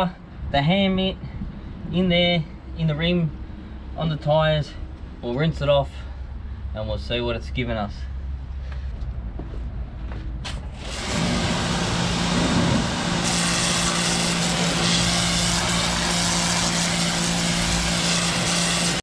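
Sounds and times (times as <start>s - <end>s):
pressure washer running: 10.4s - 19.0s.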